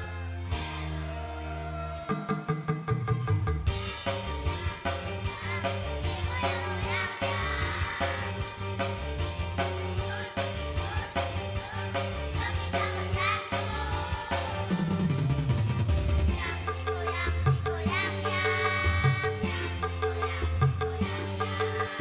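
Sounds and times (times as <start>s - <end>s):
instrumental accompaniment with beat: 2.0s - 22.0s
children's choir singing: 4.5s - 8.6s, 10.0s - 15.1s.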